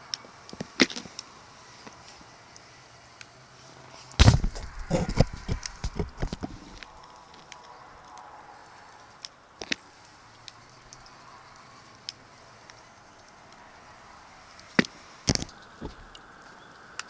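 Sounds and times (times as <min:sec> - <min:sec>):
loud knock: 0:04.2 - 0:06.8
light clattering knocks: 0:04.2 - 0:06.9.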